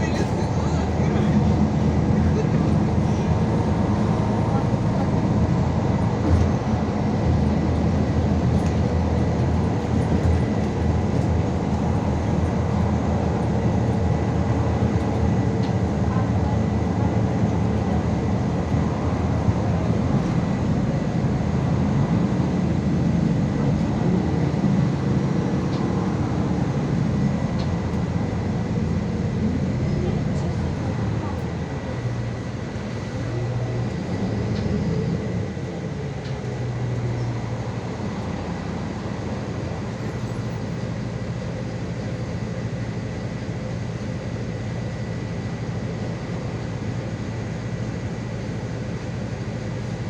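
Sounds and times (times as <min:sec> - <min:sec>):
bus engine and road noise: 0:00.0 - 0:50.0.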